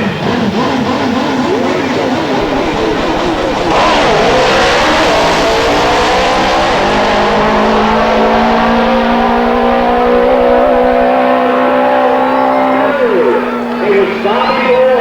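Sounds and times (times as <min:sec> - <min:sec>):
motorcycle engines at full throttle: 0:00.0 - 0:15.0.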